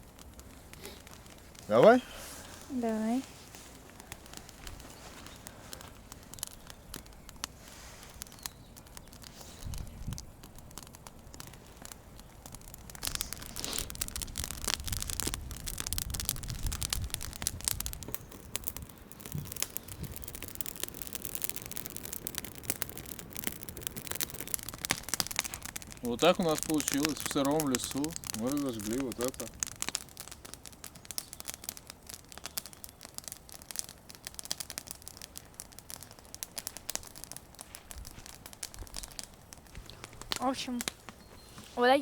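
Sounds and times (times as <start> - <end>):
campfire crackling: 0.0 - 42.0
low rumbles: 8.8 - 28.4.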